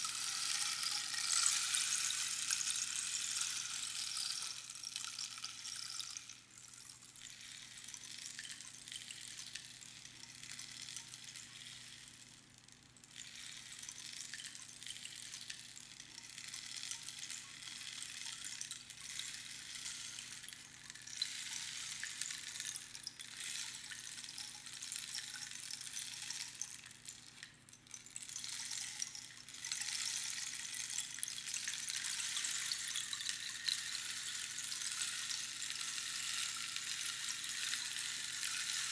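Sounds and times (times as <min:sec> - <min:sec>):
rainstick rushing patter: 0:00.0 - 0:06.4, 0:16.1 - 0:38.9.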